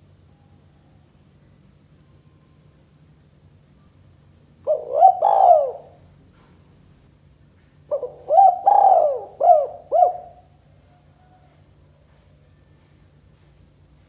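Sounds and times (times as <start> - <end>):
dove cooing: 4.6 - 6.0, 7.9 - 10.5.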